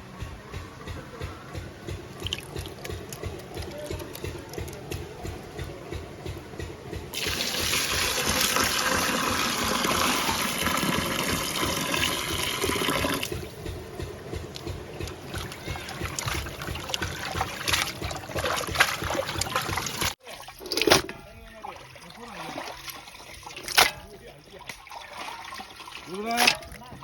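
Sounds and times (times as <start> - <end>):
water pouring: 2.1 - 4.8, 7.2 - 13.5, 14.5 - 27.0
hands washing meat in water: 2.1 - 5.4, 7.2 - 13.5, 14.5 - 27.0.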